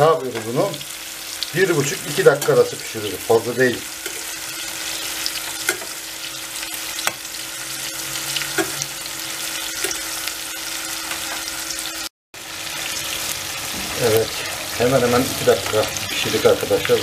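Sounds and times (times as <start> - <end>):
food deep-frying in oil: 0.0 - 17.0
metal spoon clicking against pan: 5.6 - 5.9.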